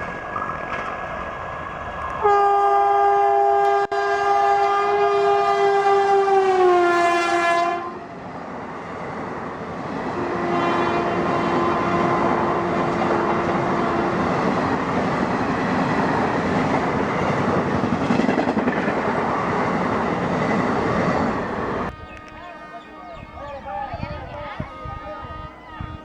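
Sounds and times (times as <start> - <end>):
train wheels rumbling on track: 0.0 - 26.0
train horn blast: 2.2 - 8.2, 10.1 - 14.8, 20.6 - 26.0.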